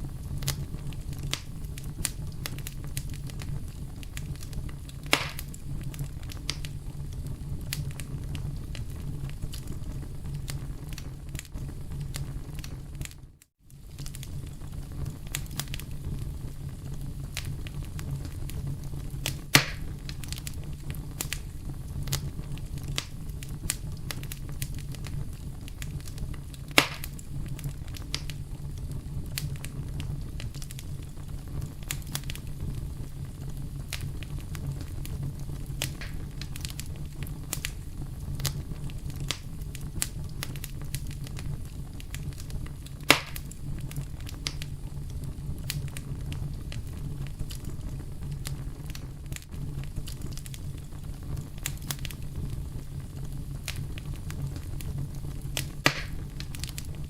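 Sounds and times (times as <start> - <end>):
burning wood crackling and popping: 0.0 - 57.0
campfire flames rumbling: 0.0 - 57.0
sharp wood snaps: 5.1 - 5.4, 19.6 - 19.8, 26.8 - 27.2, 43.1 - 43.4, 55.6 - 56.8.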